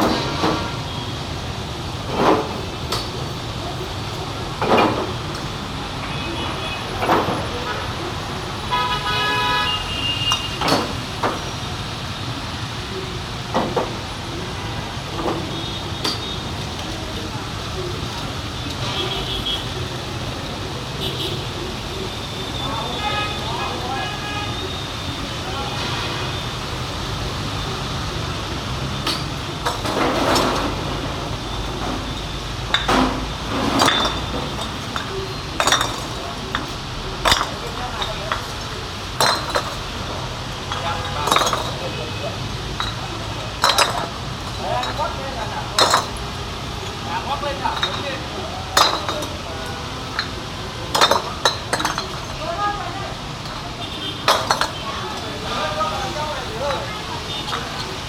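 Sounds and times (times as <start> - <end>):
traffic noise: 0.0 - 58.0
vehicle horn toot: 8.7 - 10.6, 22.8 - 24.9
metal tools clinking: 29.0 - 30.8, 32.0 - 40.0, 40.7 - 42.0, 42.7 - 45.2, 45.8 - 49.4, 50.1 - 52.4, 54.2 - 55.2
sharp knocks or clanks: 32.7 - 39.9.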